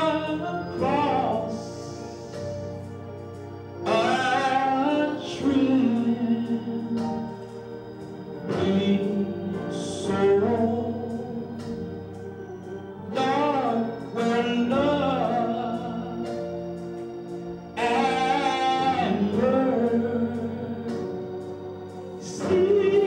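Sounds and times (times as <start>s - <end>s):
man singing gospel: 0.0s - 2.6s, 3.8s - 17.0s, 17.7s - 23.0s
sustained organ chords: 0.0s - 23.0s.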